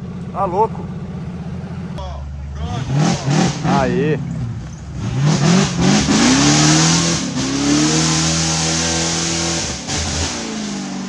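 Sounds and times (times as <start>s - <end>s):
engine revving hard: 2.6s - 11.0s.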